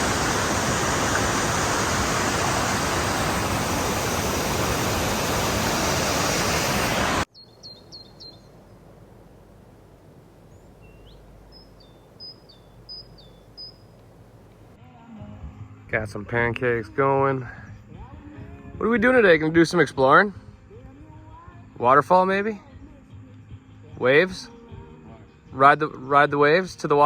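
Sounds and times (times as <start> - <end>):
waterfall roaring: 0.0 - 7.3
bird chirping: 7.3 - 8.9, 10.4 - 14.2.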